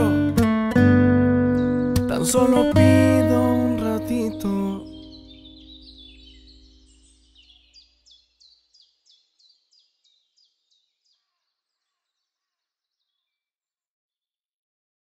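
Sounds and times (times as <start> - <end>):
music: 0.0 - 6.8.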